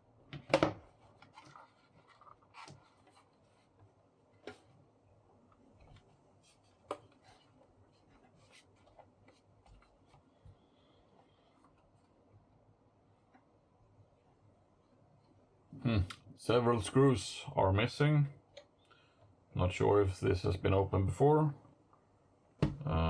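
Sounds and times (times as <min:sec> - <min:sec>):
faint scraping on plastic: 0:00.9 - 0:04.8.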